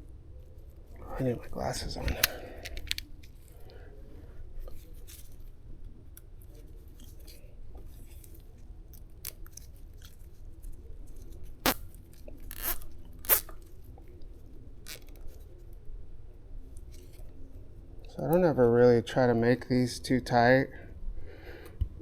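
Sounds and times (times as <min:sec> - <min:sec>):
zip ties clicking and rustling: 0:02.1 - 0:03.4, 0:08.0 - 0:10.3, 0:11.4 - 0:13.7, 0:14.8 - 0:15.4.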